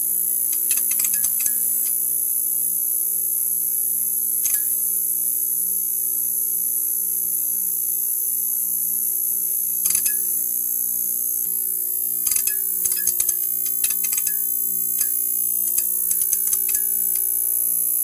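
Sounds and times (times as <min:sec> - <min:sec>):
neon sign buzzing: 0:09.2 - 0:18.0.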